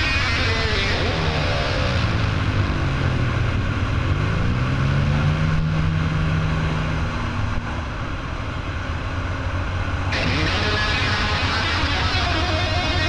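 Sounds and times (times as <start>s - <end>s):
off-road engine revving: 0.0s - 7.4s, 10.1s - 13.0s.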